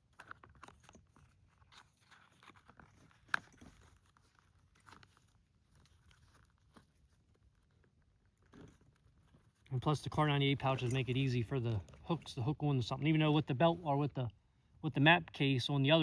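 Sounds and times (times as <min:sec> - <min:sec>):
gear handling clicks and rustles: 0:00.0 - 0:12.4.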